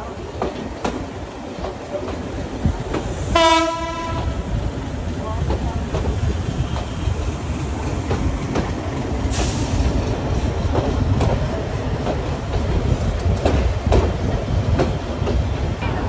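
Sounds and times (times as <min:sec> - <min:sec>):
train rumbling at speed: 0:00.0 - 0:16.0
wheels clacking over rail joints: 0:00.0 - 0:16.0
short hiss: 0:09.2 - 0:09.9.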